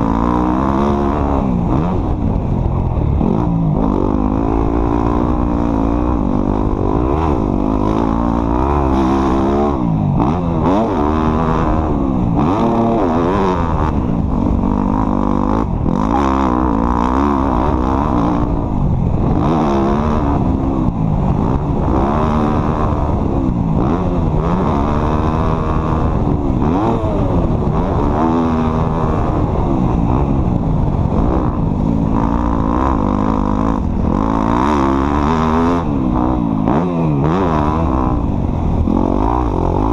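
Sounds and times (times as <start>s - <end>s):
off-road vehicle engine revving: 0.0s - 39.9s.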